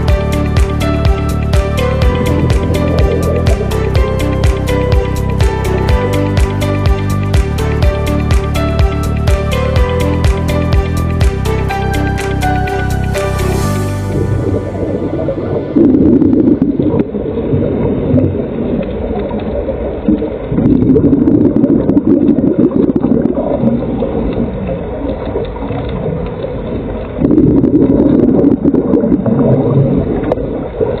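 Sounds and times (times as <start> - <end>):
muffled underwater ambience: 1.0 - 5.9, 14.0 - 31.0
bubbling from exhaled breath: 14.2 - 31.0.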